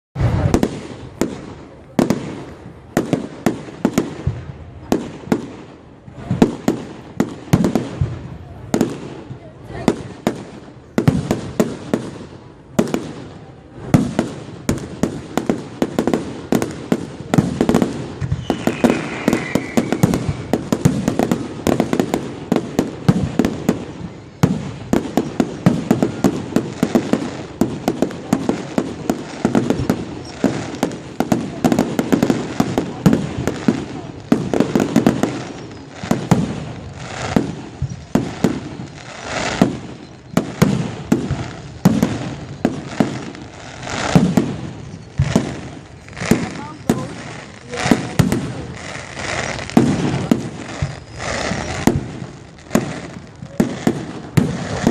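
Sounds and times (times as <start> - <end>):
fireworks bangs and crackling: 0.2 - 54.9
firework whistling: 14.6 - 54.9.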